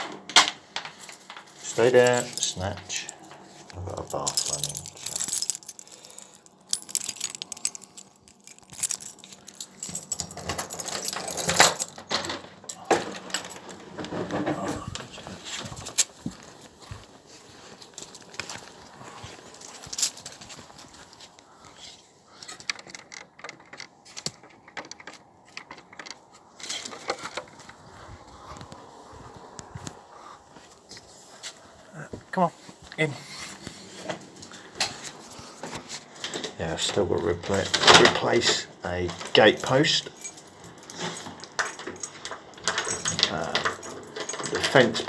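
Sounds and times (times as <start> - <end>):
metallic jingling and clinking: 0.8 - 13.9, 36.3 - 45.0
sharp clicks and light knocks: 22.5 - 27.8.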